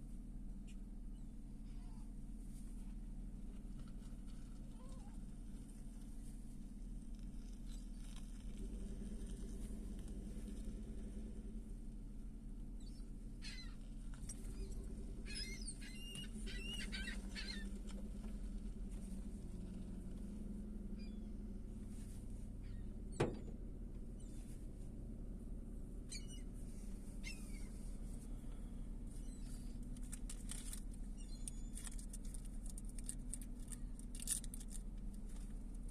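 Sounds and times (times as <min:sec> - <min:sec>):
low background rumble: 0:00.0 - 0:35.9
gulls squawking: 0:14.4 - 0:17.9.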